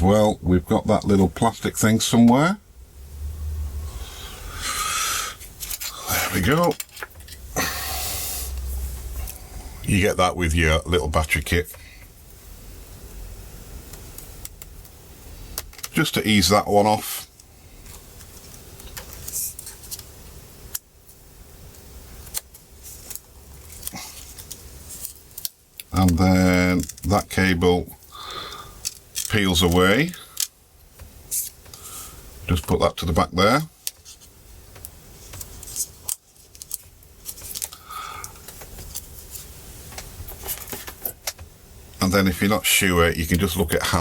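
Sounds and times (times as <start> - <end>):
low steady hum: 0.0 - 44.0
small tools clicking and tapping: 22.2 - 27.1, 28.5 - 31.8.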